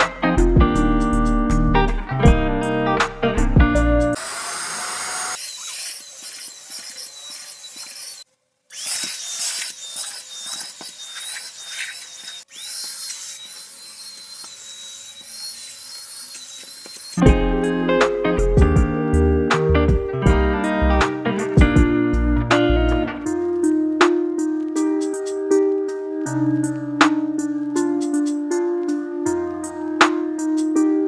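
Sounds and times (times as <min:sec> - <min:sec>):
handheld vacuum cleaner running: 0:04.2 - 0:17.2.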